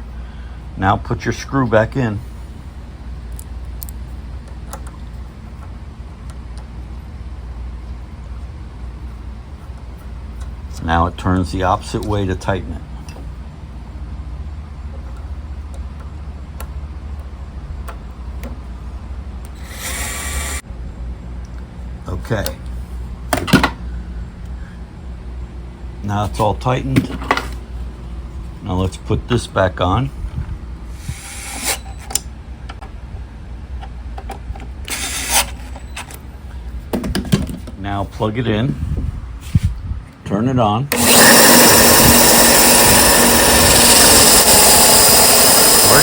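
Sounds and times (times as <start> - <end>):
steady low hum: 0.0 - 36.9
whirring noise: 19.4 - 20.6, 40.9 - 46.0
steady low rumble: 38.0 - 40.3.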